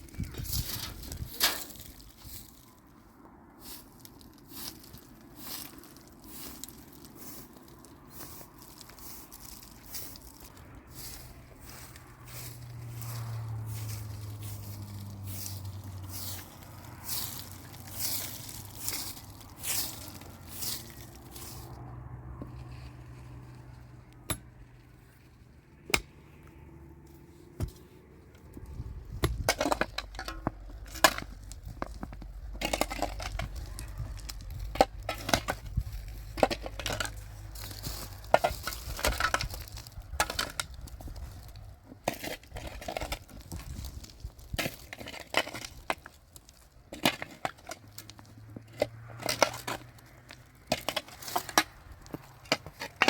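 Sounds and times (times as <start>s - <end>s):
building material clinks and scrapes: 0.0s - 2.8s, 3.6s - 21.8s, 28.5s - 53.0s
low steady rumble: 8.9s - 41.8s.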